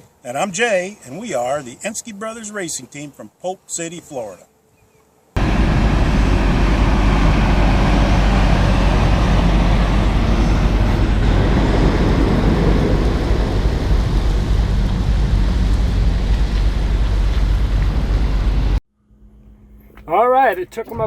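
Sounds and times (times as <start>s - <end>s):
road noise: 5.2s - 21.0s
vehicle engine rumbling: 5.4s - 21.0s.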